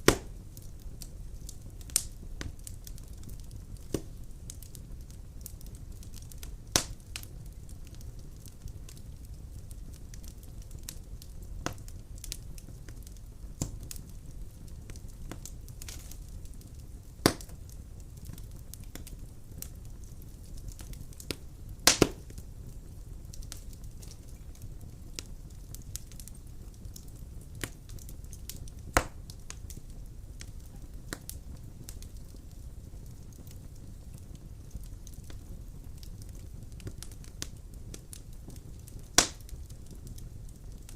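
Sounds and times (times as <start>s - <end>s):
low fire rumble: 0.0s - 40.9s
sharp pops of fire: 0.0s - 40.9s
wood fire crackling: 0.0s - 40.9s.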